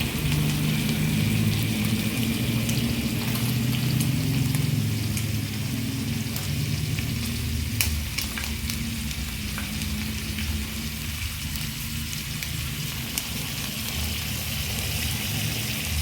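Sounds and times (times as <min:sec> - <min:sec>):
sausages sizzling in a pan: 0:00.0 - 0:16.0
popping and crackling: 0:06.3 - 0:14.9.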